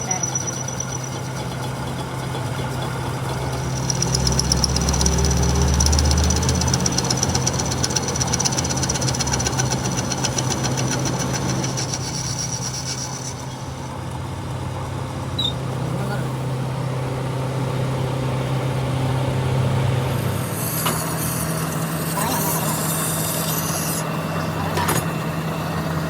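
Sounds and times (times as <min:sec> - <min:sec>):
fast high ticking: 0:00.0 - 0:14.0
deep engine rumble: 0:00.0 - 0:20.8
truck engine idling: 0:00.0 - 0:20.8.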